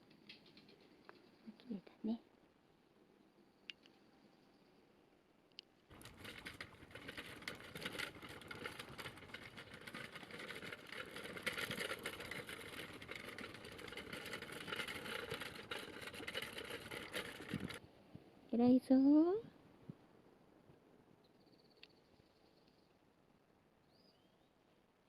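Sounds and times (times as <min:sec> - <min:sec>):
click: 0:03.7 - 0:04.0
wheels rattling over rough path: 0:05.9 - 0:17.8.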